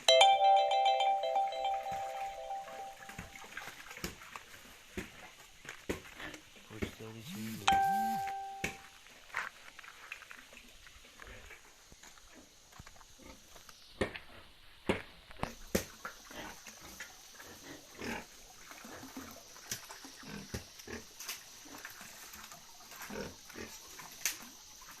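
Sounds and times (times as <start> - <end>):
pigs grunting: 16.3 - 19.2, 23.0 - 23.9.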